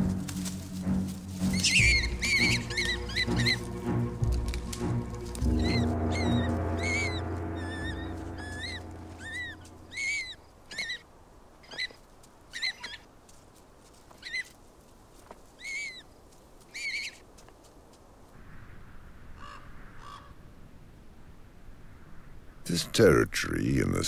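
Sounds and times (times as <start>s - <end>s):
background music: 0.0s - 10.2s
bird chirping: 1.4s - 10.9s.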